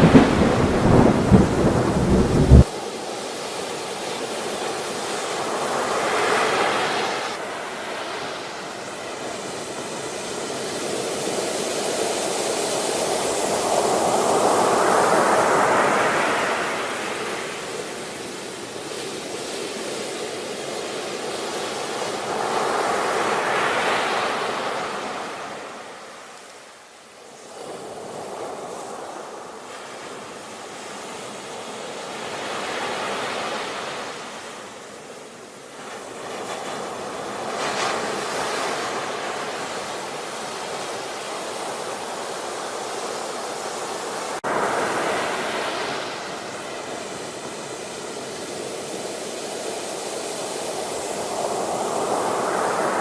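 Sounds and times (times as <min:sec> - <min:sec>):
ocean waves washing in: 0:00.0 - 0:53.0.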